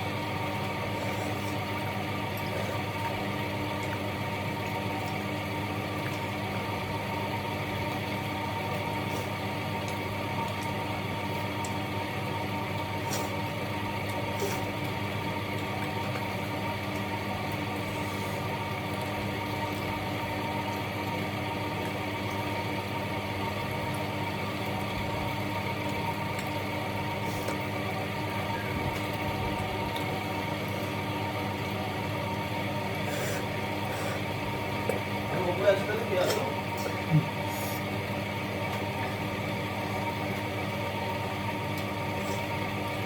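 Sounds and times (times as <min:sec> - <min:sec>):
low machine hum: 0:00.0 - 0:43.0.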